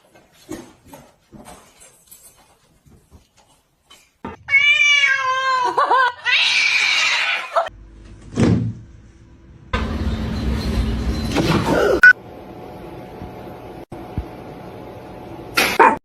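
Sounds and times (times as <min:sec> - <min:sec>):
cat meowing: 0:04.4 - 0:05.6.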